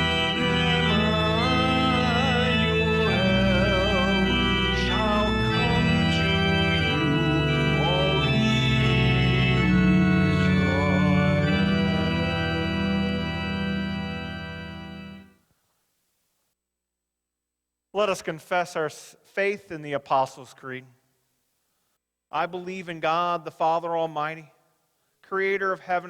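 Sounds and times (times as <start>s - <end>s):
church organ chords: 0.0s - 15.4s.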